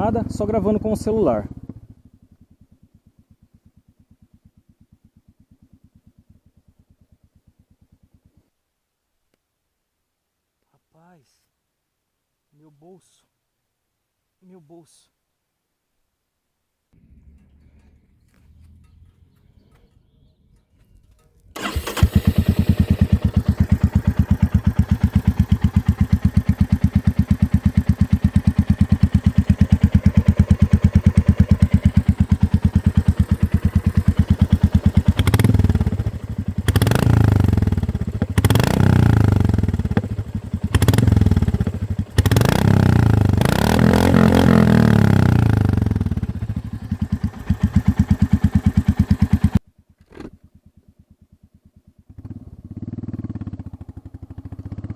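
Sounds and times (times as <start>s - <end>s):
motorcycle engine idling and revving: 0.0s - 3.0s, 17.0s - 49.6s, 50.4s - 54.9s.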